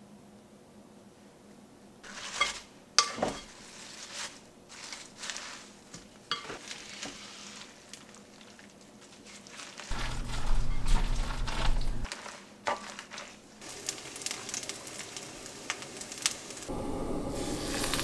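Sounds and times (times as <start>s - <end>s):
utensil scraping a pan: 2.0s - 7.8s, 9.9s - 13.4s
food sizzling in a pan: 9.9s - 18.0s.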